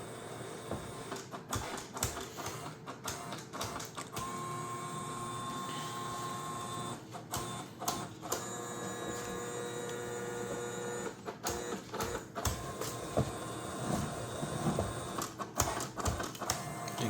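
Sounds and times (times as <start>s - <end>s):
feeder motors whining: 4.1s - 17.0s.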